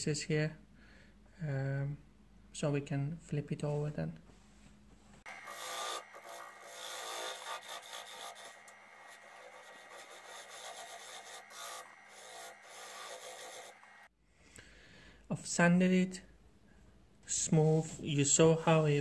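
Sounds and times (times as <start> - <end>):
lathe humming: 5.2 - 14.1
sandpaper rasping on spinning wood: 5.3 - 14.1.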